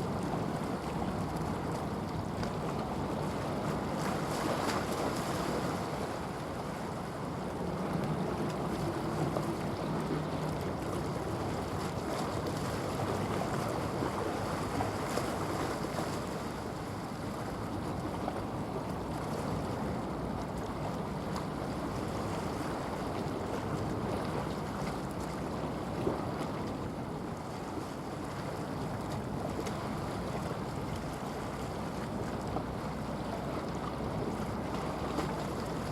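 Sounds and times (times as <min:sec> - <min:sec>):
water washing along shore: 0:00.0 - 0:35.9.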